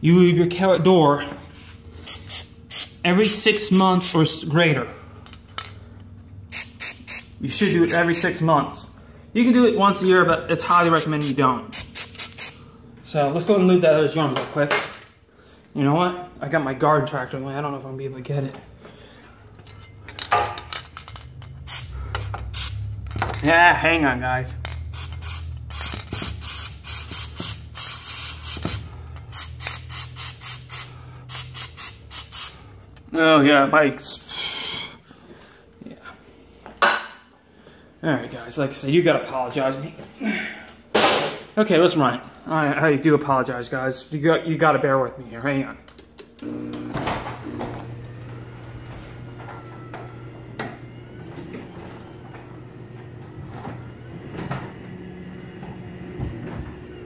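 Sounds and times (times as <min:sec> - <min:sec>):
aerosol spray squirts: 0:06.5 - 0:07.3, 0:11.0 - 0:12.6
garage door motor humming: 0:18.6 - 0:33.6, 0:46.3 - 0:57.0.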